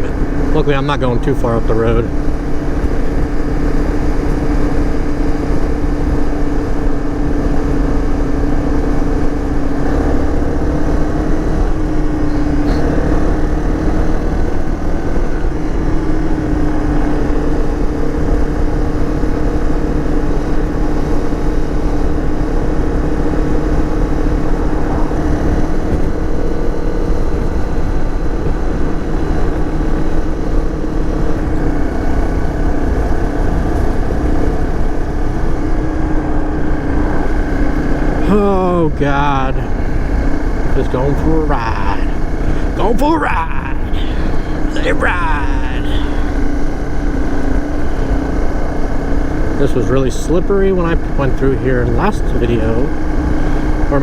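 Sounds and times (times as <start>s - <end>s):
dirt bike engine cruising: 0.0s - 54.0s.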